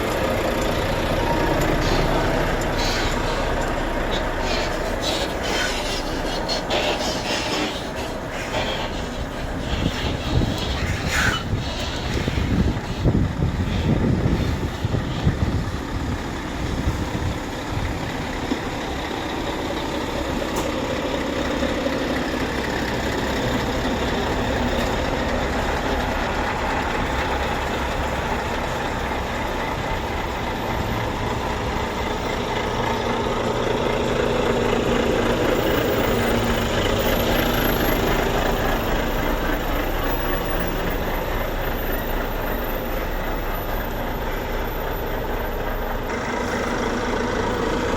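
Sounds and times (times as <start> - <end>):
heavy truck engines running: 0.0 - 47.9.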